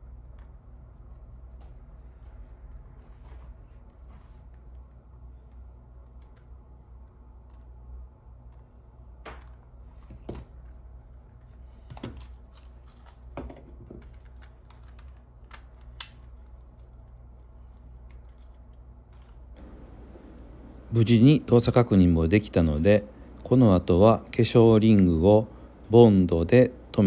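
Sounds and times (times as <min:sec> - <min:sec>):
steady low hum: 0:19.6 - 0:27.0.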